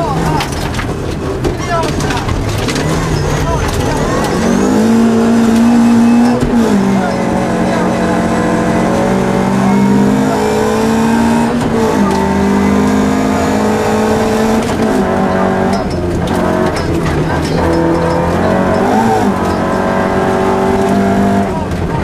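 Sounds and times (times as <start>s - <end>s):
gravel clicking and rattling: 0.0s - 4.6s
rally car engine under full throttle: 0.0s - 22.0s.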